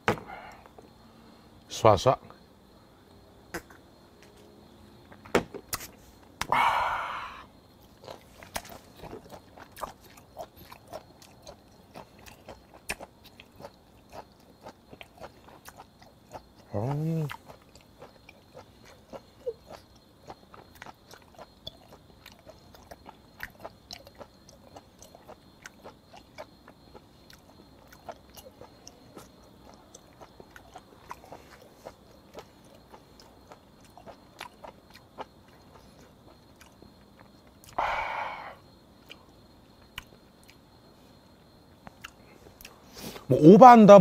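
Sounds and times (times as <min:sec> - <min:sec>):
loud breath: 0:06.5 - 0:07.5, 0:37.8 - 0:38.6
wet chewing clicks and crunches: 0:07.7 - 0:37.8, 0:39.0 - 0:42.8.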